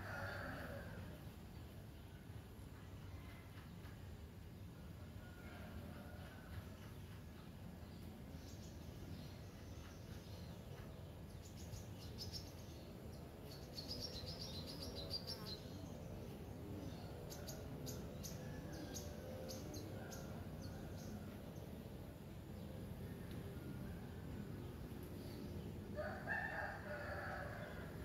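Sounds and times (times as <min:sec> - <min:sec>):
faint outdoor background noise: 0:00.0 - 0:28.0
small birds chirping and singing: 0:06.2 - 0:28.0.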